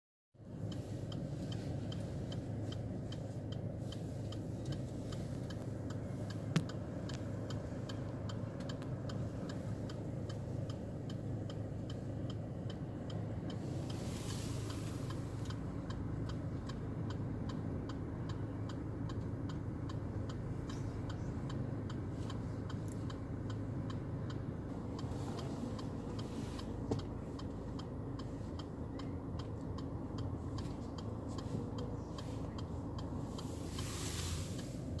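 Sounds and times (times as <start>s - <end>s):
short hiss: 13.7s - 15.3s, 33.4s - 34.9s.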